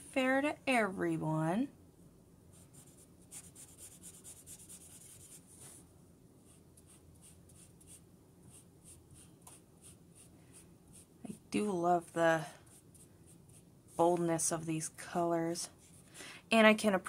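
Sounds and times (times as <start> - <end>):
marker scratching on paper: 2.6 - 5.8, 6.4 - 11.1, 12.7 - 14.1.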